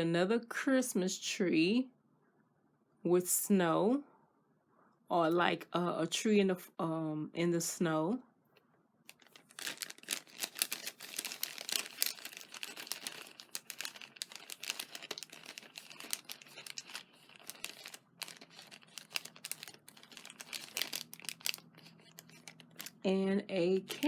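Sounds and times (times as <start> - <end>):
plastic packaging crinkling: 9.1 - 23.0, 23.7 - 24.0.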